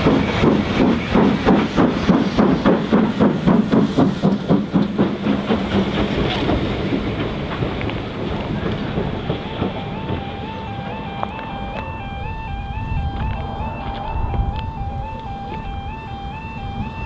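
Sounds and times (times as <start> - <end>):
steam locomotive exhaust beats: 0.0 - 17.0
train rumbling on rails: 0.0 - 17.0.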